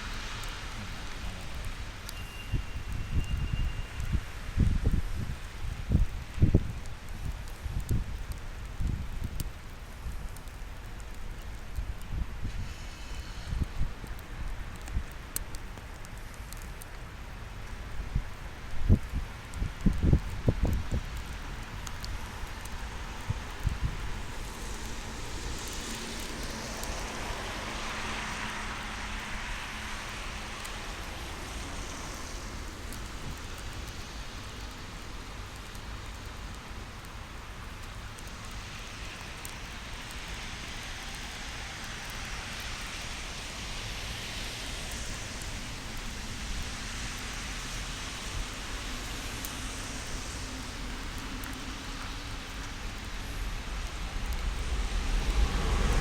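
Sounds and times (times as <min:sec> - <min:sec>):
wind hissing: 0:00.0 - 0:56.0
approaching train: 0:21.3 - 0:35.3, 0:43.2 - 0:56.0.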